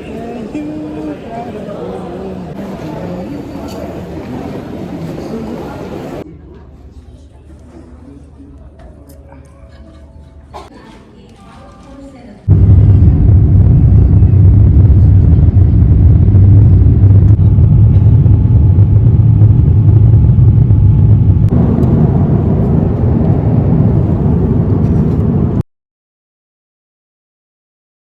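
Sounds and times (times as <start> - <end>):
vehicle rumble: 12.5 - 25.6.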